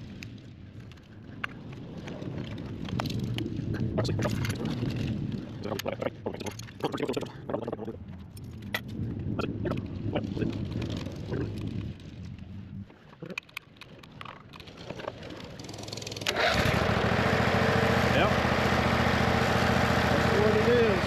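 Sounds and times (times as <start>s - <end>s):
small engine running: 15.4s - 21.0s
loud steady engine: 15.7s - 21.0s.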